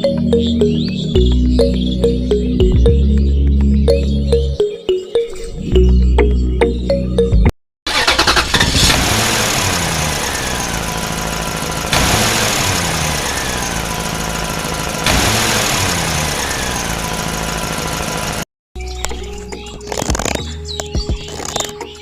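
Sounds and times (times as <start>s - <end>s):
engine running: 7.9s - 18.5s.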